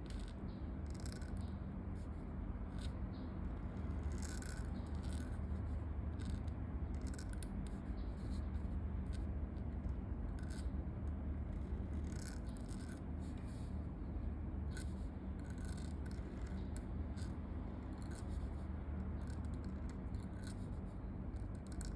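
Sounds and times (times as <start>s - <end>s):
low ambient rumble: 0.0s - 21.9s
pen scratching on paper: 2.7s - 9.2s.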